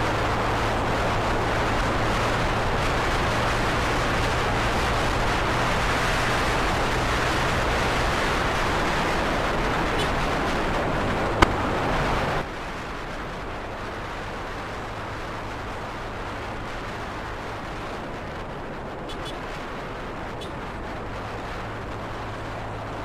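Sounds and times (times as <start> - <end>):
motorcycle engine hum: 0.0 - 23.0
wind rush on microphone: 0.0 - 23.0.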